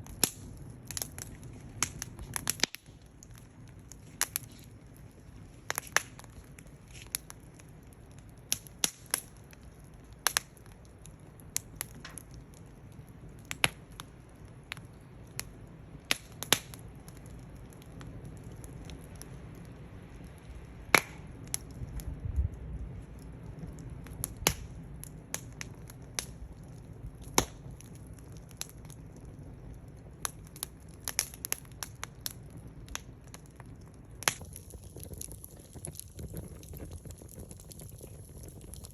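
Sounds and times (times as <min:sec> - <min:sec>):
low rush of burning: 0:00.0 - 0:38.9
wood fire crackling: 0:00.0 - 0:38.9
sharp pops: 0:20.9 - 0:21.3.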